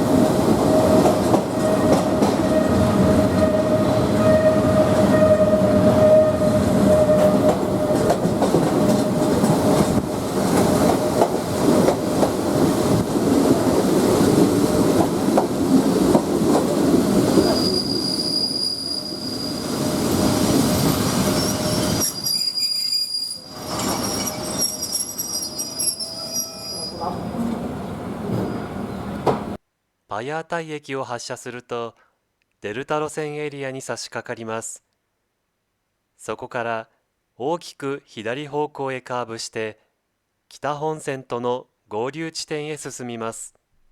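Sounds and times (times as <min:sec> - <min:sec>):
train rumbling on rails: 0:00.0 - 0:22.5, 0:23.4 - 0:29.6
high-pitched wheel squeal: 0:01.7 - 0:07.6, 0:17.4 - 0:19.9, 0:21.2 - 0:27.2.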